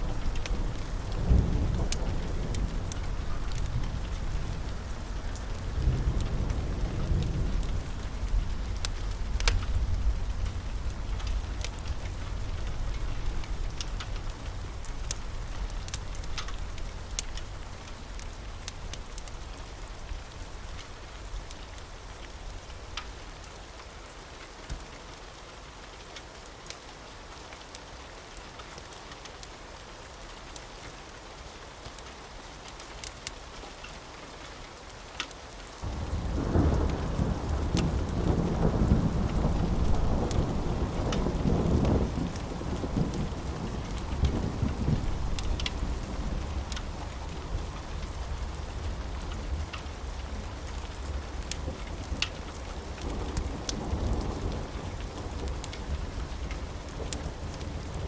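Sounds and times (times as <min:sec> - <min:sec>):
thunder rumble: 0:00.0 - 0:19.8, 0:35.8 - 0:58.0
steady rain falling: 0:00.0 - 0:58.0.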